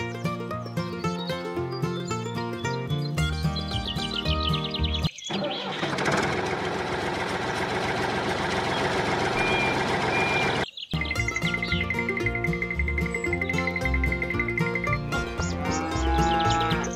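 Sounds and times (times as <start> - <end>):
background music: 0.0 - 5.1, 11.0 - 16.9
toy tractor motor running: 5.3 - 10.6
short high beeps: 9.4 - 10.6.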